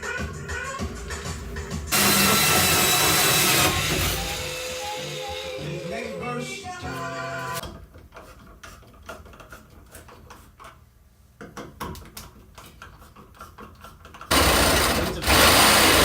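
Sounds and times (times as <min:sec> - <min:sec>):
loud steady machine noise: 0:01.9 - 0:05.9, 0:14.3 - 0:16.0.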